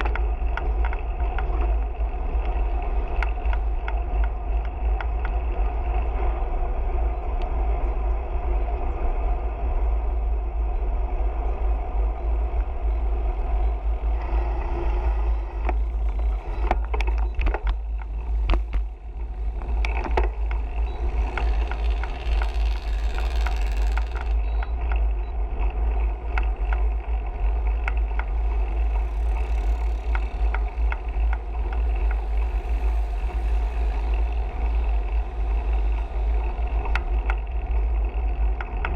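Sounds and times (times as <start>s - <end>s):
bicycle clicks and rattles: 0.0s - 6.0s, 15.5s - 38.9s
road noise: 0.0s - 38.9s
wind rumble on microphone: 0.0s - 38.9s.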